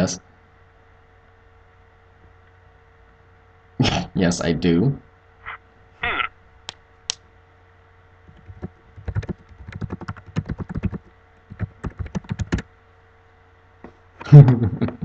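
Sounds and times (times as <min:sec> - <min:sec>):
typing on computer keyboard: 0:08.3 - 0:12.6.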